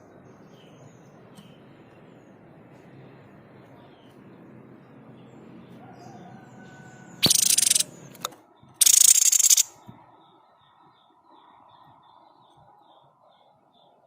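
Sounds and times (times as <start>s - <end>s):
faint high bird calls: 5.7s - 14.0s
bird harsh rattling call: 7.2s - 8.0s, 8.8s - 9.7s
sharp click: 7.2s - 9.7s.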